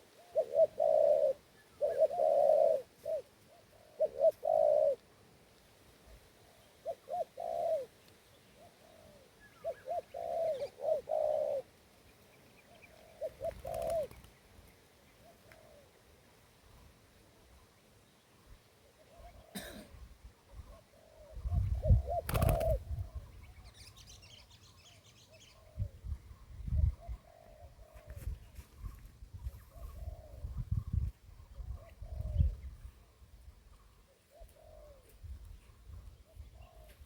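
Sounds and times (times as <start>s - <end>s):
dove cooing: 0.0s - 5.0s, 6.4s - 8.0s, 8.6s - 11.8s, 12.7s - 14.3s, 15.2s - 16.1s, 19.0s - 28.6s, 29.4s - 33.2s, 33.8s - 37.0s.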